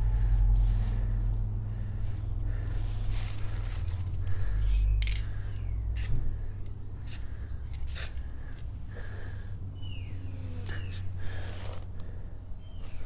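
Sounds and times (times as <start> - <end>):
steady low rumble: 0.0 - 13.0
spray paint can hissing: 6.0 - 6.2, 7.0 - 8.3.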